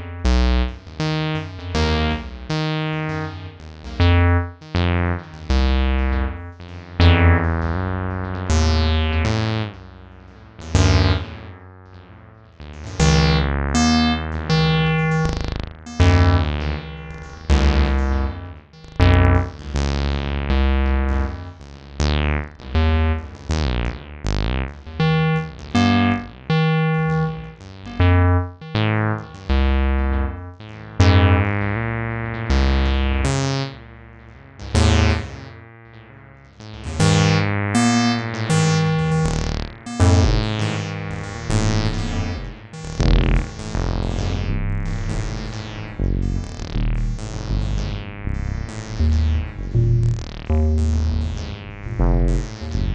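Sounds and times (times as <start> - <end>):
squelchy synth bass notes: 0.0 - 9.6, 12.6 - 30.3, 37.0 - 52.9
deep low bass: 12.7 - 26.5, 40.2 - 52.9.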